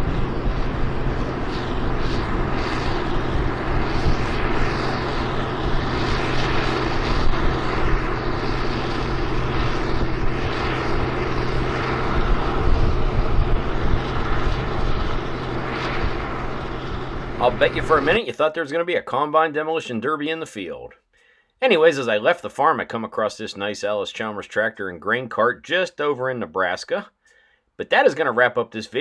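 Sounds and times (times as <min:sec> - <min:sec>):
broad rushing noise: 0:00.0 - 0:19.4
combine engine hum: 0:00.0 - 0:20.0.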